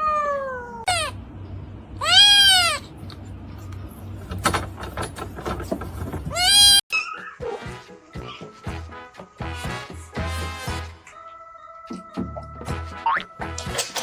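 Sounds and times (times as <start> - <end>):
cat meowing loudly: 2.0 - 2.8, 6.3 - 6.8.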